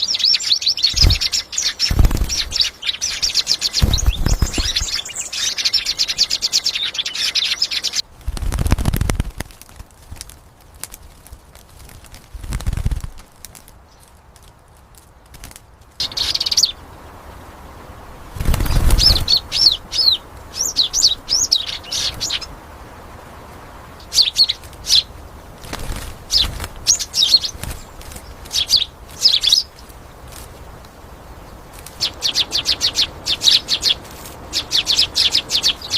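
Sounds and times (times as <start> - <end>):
small bird chirping: 0.0 - 8.1, 16.0 - 16.8, 18.4 - 22.5, 24.0 - 25.1, 25.7 - 30.5, 31.3 - 35.9
fluttering wingbeats: 0.7 - 16.7, 18.2 - 22.6, 24.2 - 35.9.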